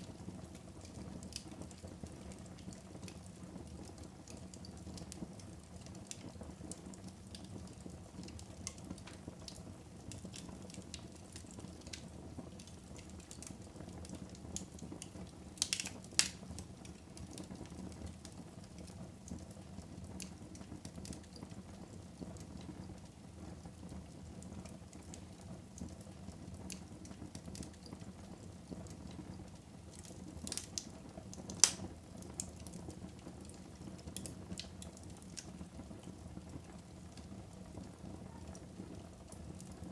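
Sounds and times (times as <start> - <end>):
fire burning in fireplace: 0.0 - 39.9
small crackles of fire: 0.0 - 39.9
sharp pops of fire: 10.0 - 17.6, 29.9 - 32.8.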